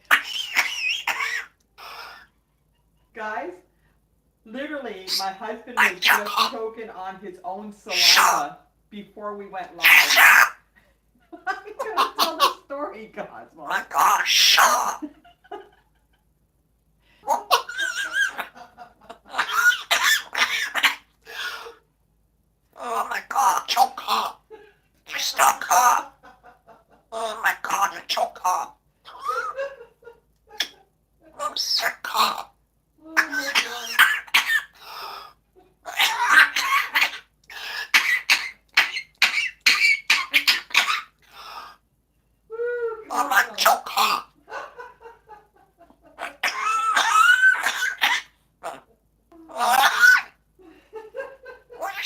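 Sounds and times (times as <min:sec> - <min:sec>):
parrot mimicking coughing: 0:00.1 - 0:02.3, 0:13.7 - 0:15.0, 0:17.3 - 0:18.5, 0:19.3 - 0:21.8, 0:22.8 - 0:24.4, 0:25.1 - 0:26.0, 0:27.1 - 0:29.6, 0:30.6 - 0:32.5, 0:33.2 - 0:41.8, 0:43.1 - 0:44.4, 0:46.2 - 0:48.9, 0:49.5 - 0:50.4, 0:51.8 - 0:52.0
person laughing: 0:14.8 - 0:16.3.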